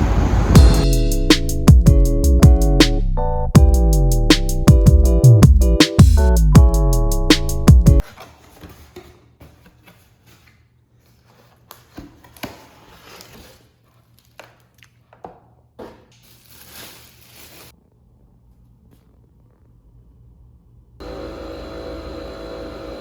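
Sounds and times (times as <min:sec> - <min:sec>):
intro music: 0:00.0 - 0:08.0.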